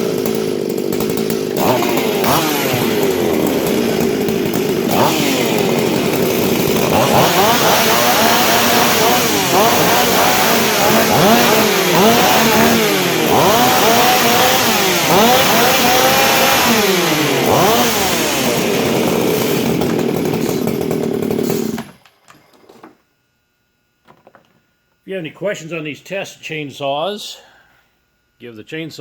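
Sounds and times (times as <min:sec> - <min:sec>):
chainsaw revving: 0:00.0 - 0:22.0.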